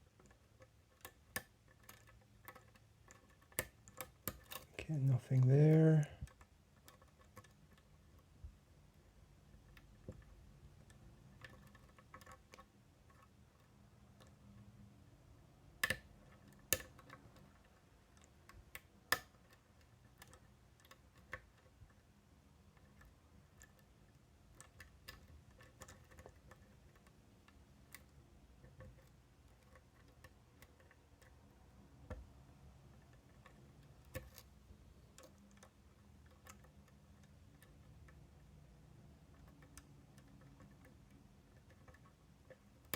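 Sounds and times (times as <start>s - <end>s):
lock picks ticking and scraping: 0.0s - 8.4s, 9.4s - 14.7s, 22.6s - 32.1s, 32.7s - 38.4s.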